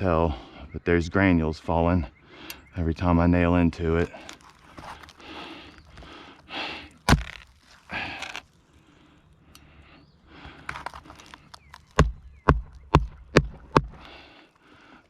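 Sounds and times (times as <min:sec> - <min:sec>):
shingles rustling and scraping: 0:03.9 - 0:09.0, 0:10.4 - 0:12.0
hatchet hammering nails: 0:12.0 - 0:14.0.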